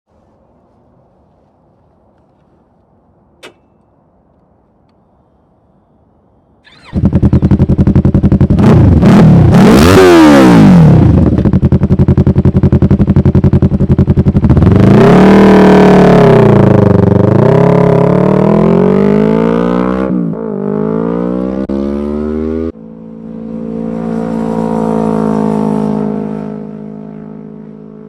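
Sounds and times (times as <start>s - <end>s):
motorcycle engine idling and revving: 6.6s - 28.0s.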